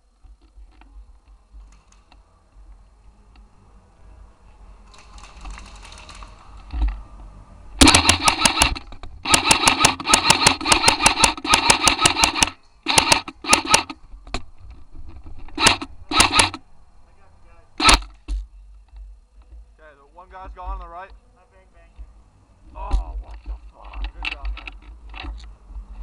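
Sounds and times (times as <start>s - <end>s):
airsoft rifle firing full auto: 7.8s - 14.0s, 15.6s - 16.6s, 17.8s - 18.1s.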